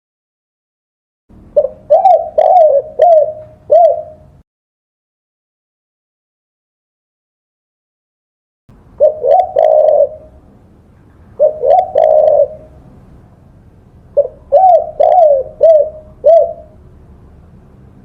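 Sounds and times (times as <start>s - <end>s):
dove cooing: 1.5s - 4.4s, 9.0s - 10.4s, 11.2s - 12.9s, 14.1s - 16.8s.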